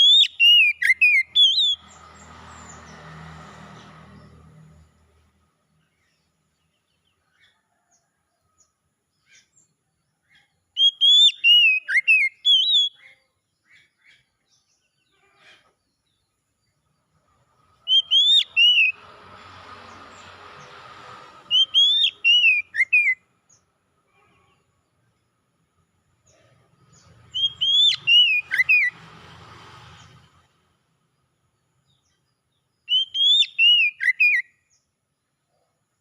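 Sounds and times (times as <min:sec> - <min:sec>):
bird whistled phrases: 0:00.0 - 0:01.8, 0:10.8 - 0:13.1, 0:17.9 - 0:19.0, 0:21.5 - 0:23.2, 0:27.3 - 0:28.9, 0:32.9 - 0:34.6.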